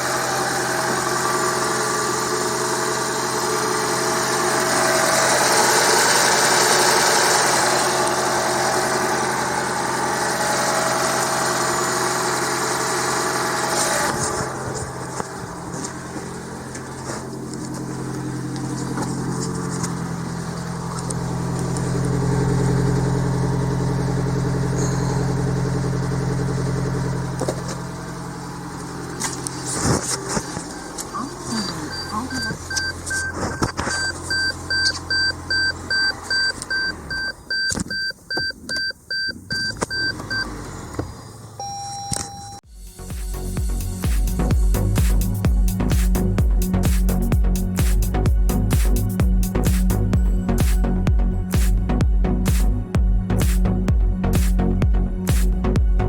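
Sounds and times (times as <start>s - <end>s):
car engine running: 0.0s - 56.0s
short electronic beep: 24.8s - 25.5s, 31.2s - 40.5s, 41.6s - 42.6s.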